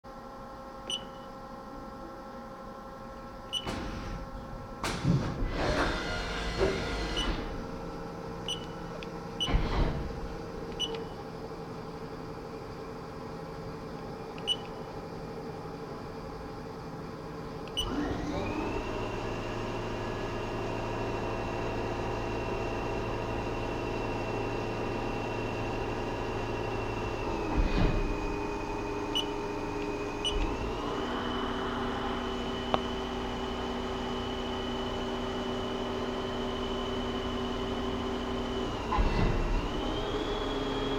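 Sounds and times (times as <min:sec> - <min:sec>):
lathe humming: 0:17.9 - 0:39.0.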